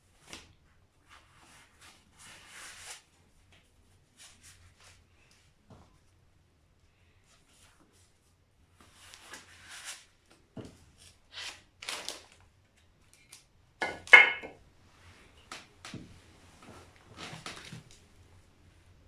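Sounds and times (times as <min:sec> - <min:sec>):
metal tools scraping and knocking: 0:13.8 - 0:14.6.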